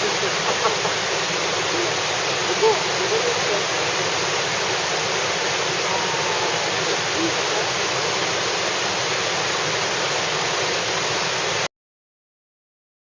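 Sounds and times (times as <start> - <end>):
rushing water roar: 0.0 - 11.7.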